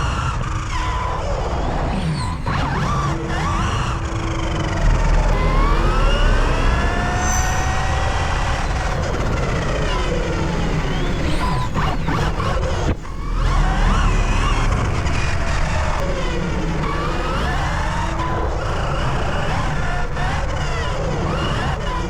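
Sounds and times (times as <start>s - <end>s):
constant low rumble: 0.0s - 22.0s
rc car electric motors whining: 1.9s - 22.0s.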